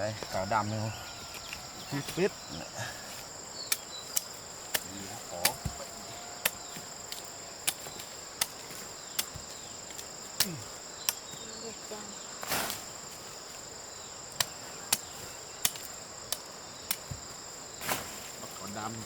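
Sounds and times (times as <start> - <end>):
crickets chirring: 0.0 - 19.0
hand tool chopping soil: 3.7 - 11.4, 14.3 - 18.3.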